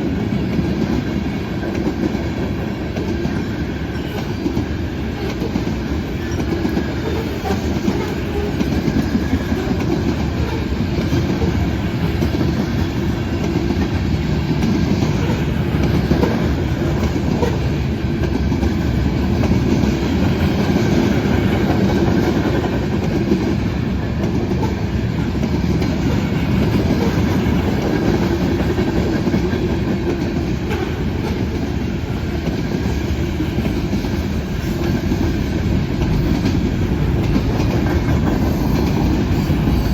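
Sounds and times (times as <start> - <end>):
freight train wheels on rails: 0.0 - 39.9.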